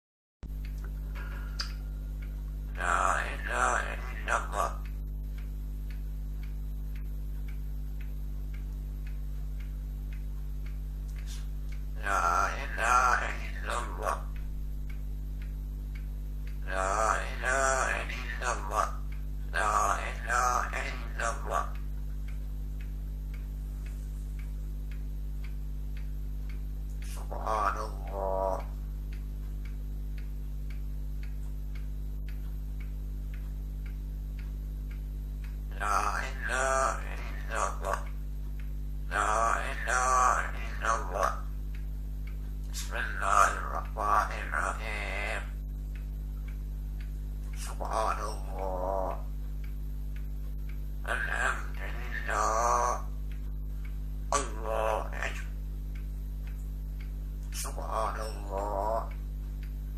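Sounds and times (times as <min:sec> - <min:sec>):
clock ticking: 0:00.4 - 0:59.9
electrical hum: 0:00.4 - 0:59.9
loud wavering voice: 0:02.7 - 0:04.9, 0:11.2 - 0:14.4, 0:16.6 - 0:21.8, 0:27.0 - 0:28.8, 0:35.7 - 0:38.1, 0:39.1 - 0:41.5, 0:42.7 - 0:45.6, 0:47.6 - 0:49.3, 0:51.0 - 0:53.2, 0:54.3 - 0:55.6, 0:57.5 - 0:59.2.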